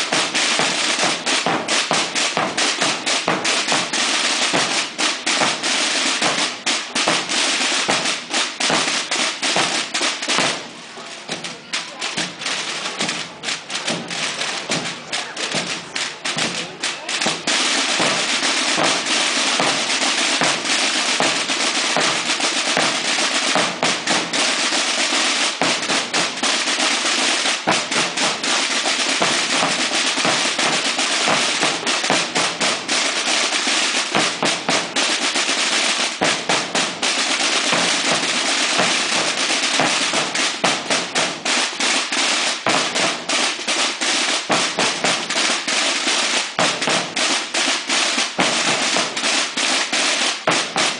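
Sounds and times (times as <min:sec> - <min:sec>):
snare drums rolling: 0:00.0 - 0:50.9.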